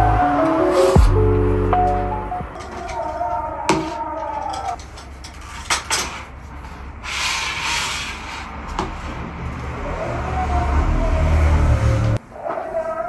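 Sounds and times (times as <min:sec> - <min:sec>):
low hum: 0:00.0 - 0:03.7.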